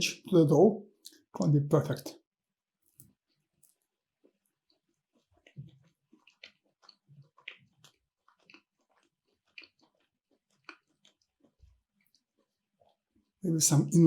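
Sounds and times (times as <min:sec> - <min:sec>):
person chewing food: 0:02.9 - 0:13.4.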